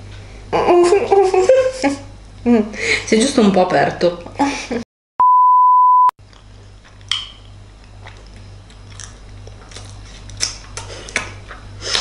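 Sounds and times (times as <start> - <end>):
person chewing: 6.2 - 12.0
mouth clicks and crackles: 6.3 - 12.0.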